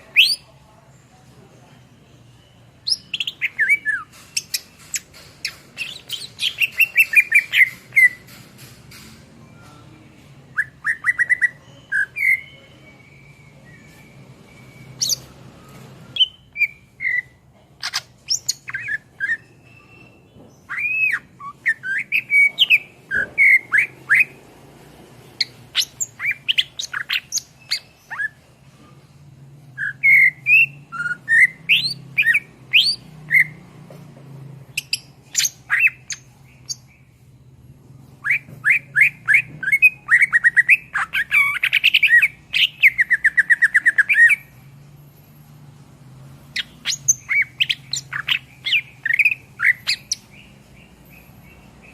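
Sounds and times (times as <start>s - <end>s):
bird singing whistled song: 2.3s - 5.0s, 5.8s - 8.2s, 10.5s - 24.4s, 25.4s - 28.4s, 29.8s - 33.6s, 34.8s - 37.0s, 38.2s - 44.5s, 46.5s - 51.9s.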